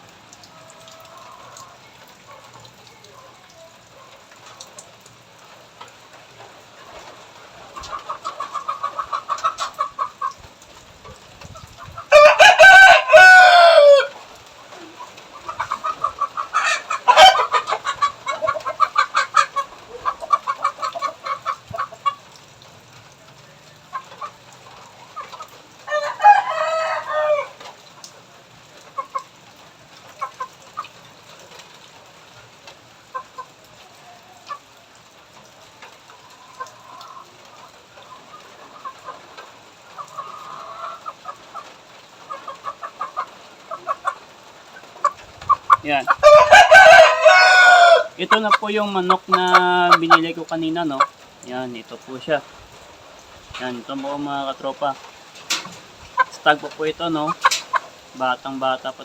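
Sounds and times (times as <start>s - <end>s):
chicken clucking: 0.4s - 4.9s, 5.8s - 10.5s, 11.1s - 22.4s, 23.4s - 28.1s, 28.8s - 29.4s, 30.0s - 31.7s, 33.1s - 34.7s, 35.7s - 52.4s, 53.5s - 59.0s
rooster crowing: 12.1s - 14.2s, 16.5s - 18.6s, 25.8s - 27.7s, 46.2s - 48.2s.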